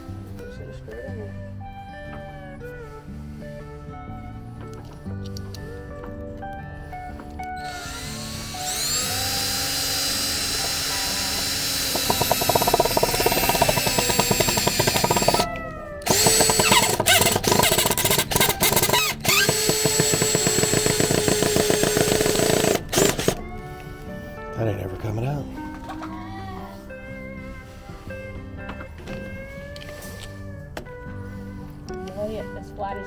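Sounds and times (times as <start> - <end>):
cordless drill driving screw: 7.6 - 23.5.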